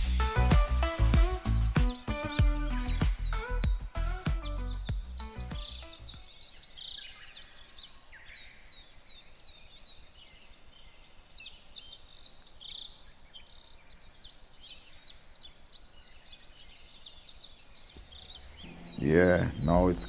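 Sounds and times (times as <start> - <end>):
birds chirping: 0.0 - 11.0, 17.8 - 20.0
faint background hiss: 6.2 - 20.0.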